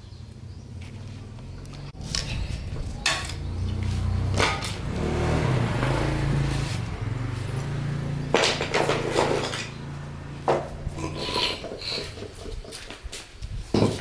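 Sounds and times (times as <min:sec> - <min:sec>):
diesel engine humming: 0:01.1 - 0:11.7.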